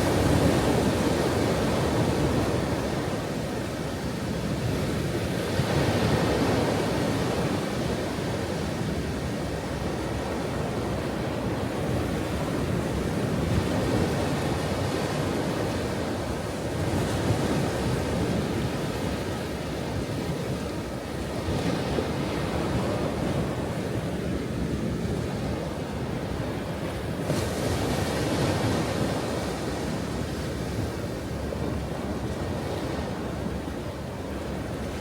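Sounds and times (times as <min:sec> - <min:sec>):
ocean waves breaking on shore: 0:00.0 - 0:35.0.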